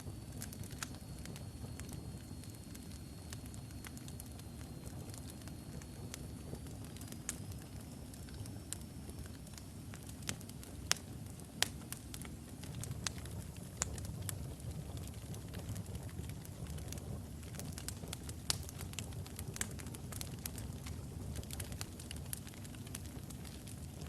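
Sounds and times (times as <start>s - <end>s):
fire crackles and pops: 0.0s - 24.0s
low rumble of flames: 0.0s - 24.0s.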